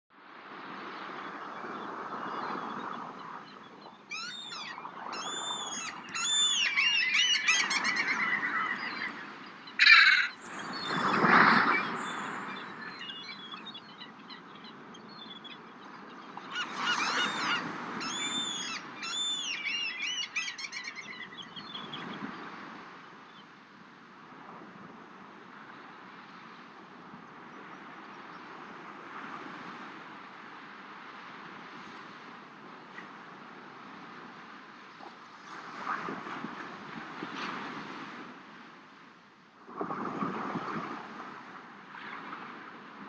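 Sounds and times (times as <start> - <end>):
birds crying: 4.1 - 15.6, 16.3 - 21.9
ocean waves surging: 4.6 - 14.4.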